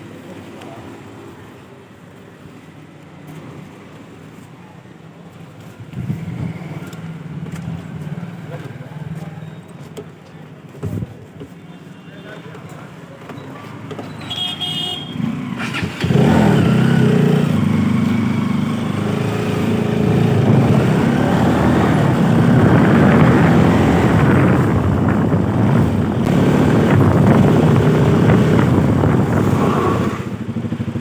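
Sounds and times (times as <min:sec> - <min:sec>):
motorcycle engine running: 0:15.2 - 0:31.0.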